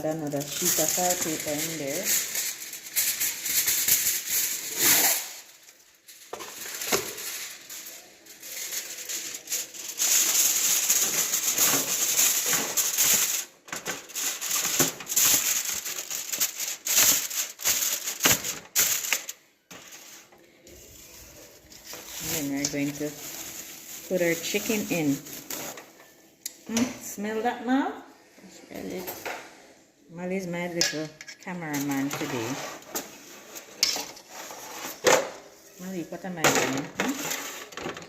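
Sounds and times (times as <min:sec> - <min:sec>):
aluminium foil crinkling: 0:00.0 - 0:26.6, 0:31.6 - 0:38.0.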